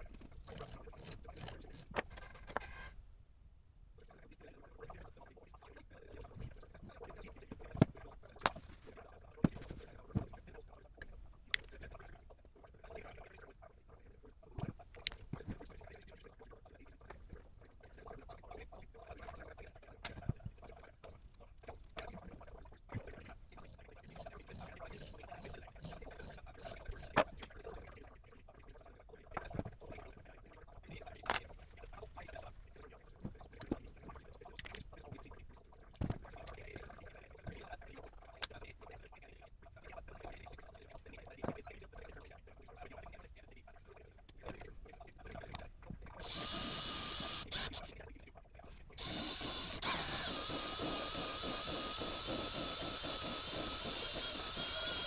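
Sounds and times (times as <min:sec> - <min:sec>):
power tool motor whining: 0:46.2 - 0:47.9, 0:49.0 - 0:55.0.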